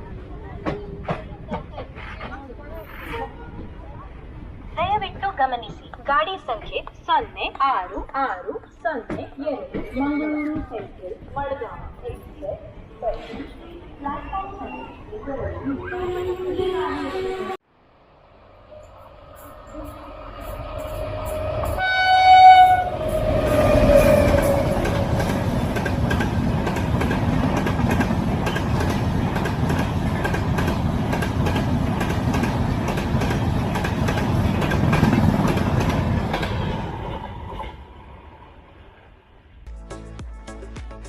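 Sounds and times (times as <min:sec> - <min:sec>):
train horn: 0:19.7 - 0:25.0
train wheels clacking on rails: 0:22.5 - 0:36.8.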